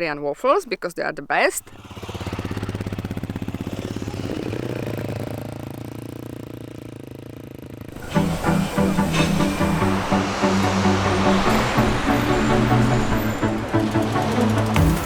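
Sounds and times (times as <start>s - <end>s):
motorcycle engine running: 1.6s - 15.0s
music: 8.0s - 15.0s.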